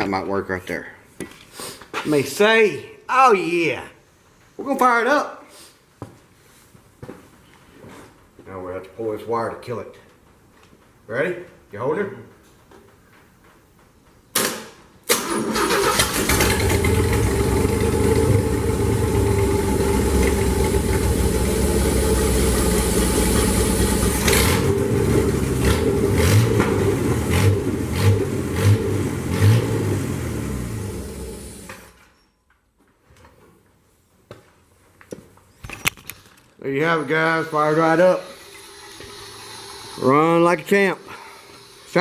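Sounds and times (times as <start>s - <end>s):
engine cranking and starting: 15.1s - 28.8s
engine running: 15.8s - 32.0s
engine revving blips: 16.3s - 31.8s.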